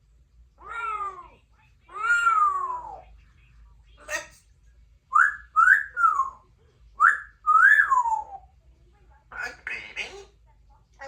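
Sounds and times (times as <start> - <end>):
parrot whistling: 5.1 - 6.4, 7.0 - 8.4.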